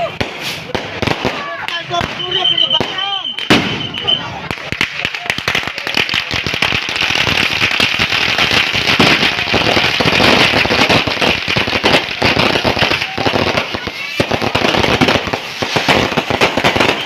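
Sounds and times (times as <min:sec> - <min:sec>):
fireworks crackling: 0:00.0 - 0:17.0.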